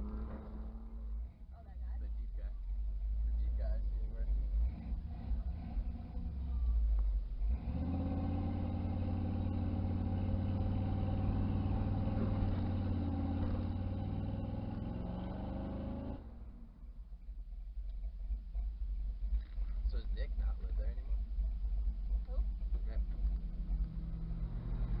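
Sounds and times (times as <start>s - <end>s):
pickup engine at high revs: 0.0s - 1.4s, 4.2s - 16.5s.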